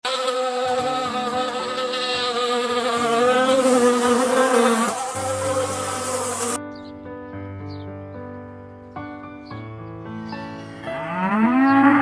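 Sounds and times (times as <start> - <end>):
wasps buzzing: 0.0 - 6.6.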